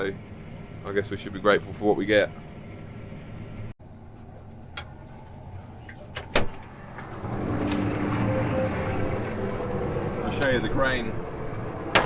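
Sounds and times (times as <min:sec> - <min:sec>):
combine harvester cab hum: 0:02.4 - 0:12.0.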